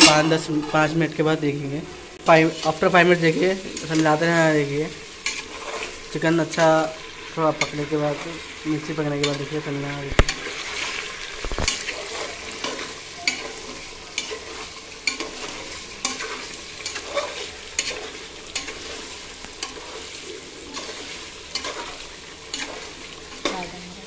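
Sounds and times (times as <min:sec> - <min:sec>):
food sizzling in oil: 0:00.0 - 0:24.0
steel spoon scraping pot: 0:10.2 - 0:23.6.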